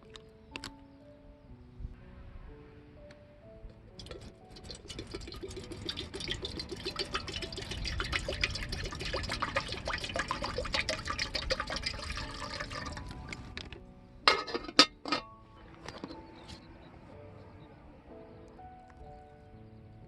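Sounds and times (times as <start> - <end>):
water pouring into container: 4.0 - 13.7.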